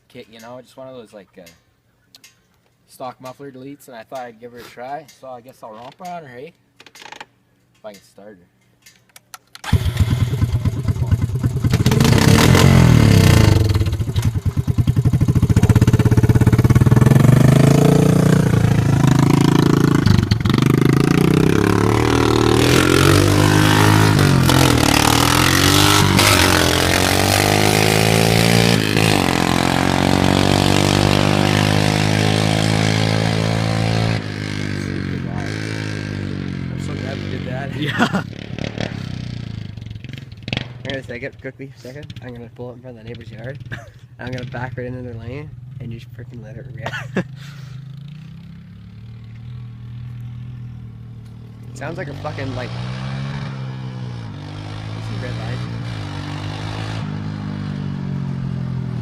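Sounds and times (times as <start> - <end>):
loud atv engine revving: 9.6 - 42.3, 46.8 - 59.0.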